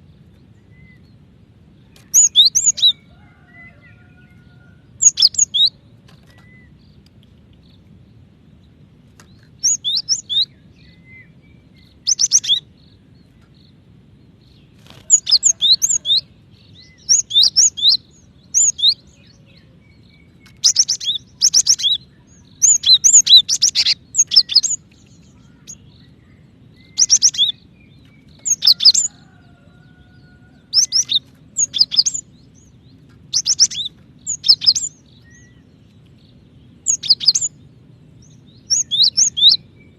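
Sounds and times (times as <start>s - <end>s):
faint low hum: 0.0s - 39.9s
bird high sharp chirps: 2.0s - 3.0s, 5.0s - 6.8s, 11.8s - 12.7s, 20.4s - 27.6s, 28.3s - 29.2s, 30.7s - 32.3s, 33.3s - 35.5s, 36.8s - 37.6s.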